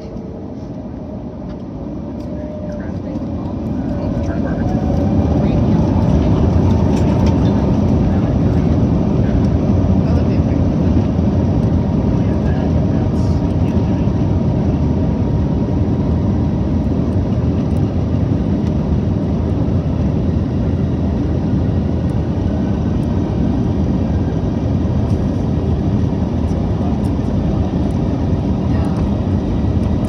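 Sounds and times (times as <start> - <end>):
jet engine cabin rumble: 0.0 - 30.0.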